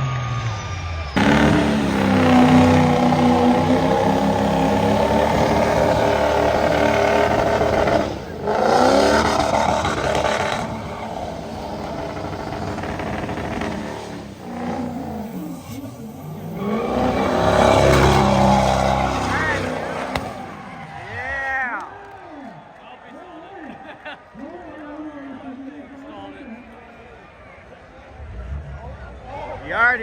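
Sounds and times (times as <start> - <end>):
truck engine revving: 0.0 - 21.5.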